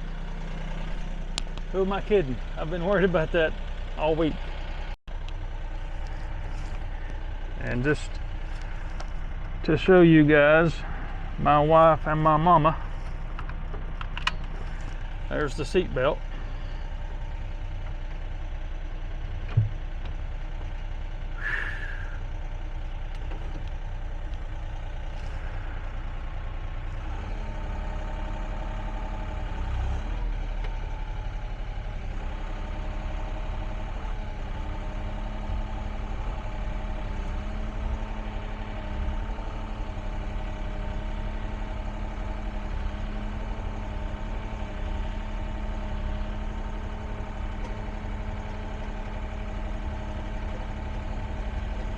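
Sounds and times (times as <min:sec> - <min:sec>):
excavator diesel engine running: 0:00.0 - 0:51.9
steady whine: 0:21.4 - 0:22.2.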